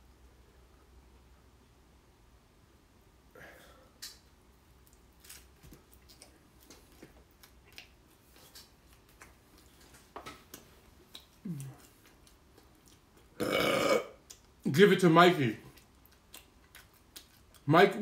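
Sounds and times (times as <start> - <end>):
mouth clicks and smacks: 4.0 - 5.1, 5.9 - 13.3, 15.7 - 17.7
faint chewing: 4.0 - 14.6, 15.6 - 17.7
person humming low: 11.4 - 11.8.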